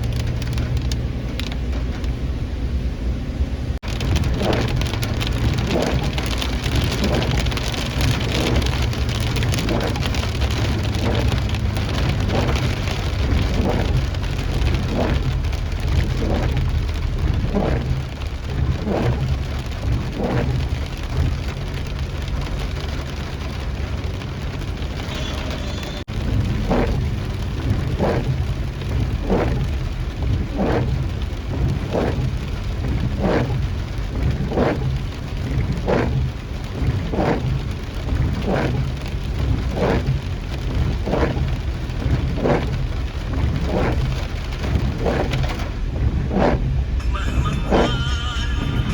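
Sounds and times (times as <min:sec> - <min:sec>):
rain on a hard surface: 0:00.0 - 0:02.5, 0:03.8 - 0:48.9
low rumble: 0:00.0 - 0:48.9
regular swish: 0:46.2 - 0:47.0.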